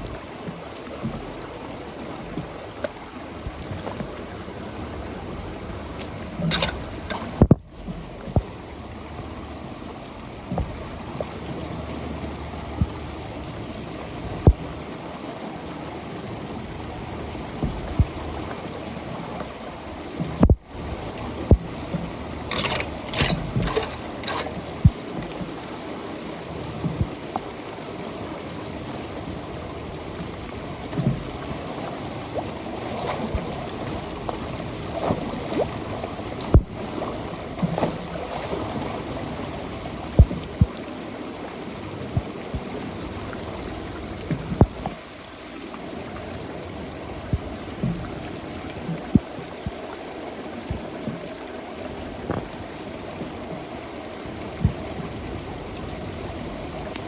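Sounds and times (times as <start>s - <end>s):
water running into storm drain: 0.0s - 57.0s
sharp knocks and clunks: 22.5s - 25.0s, 36.5s - 36.8s.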